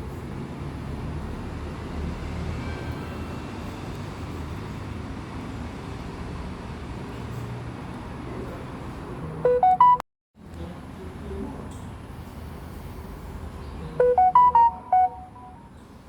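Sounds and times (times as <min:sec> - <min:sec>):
rising electronic chime: 0:14.0 - 0:15.7.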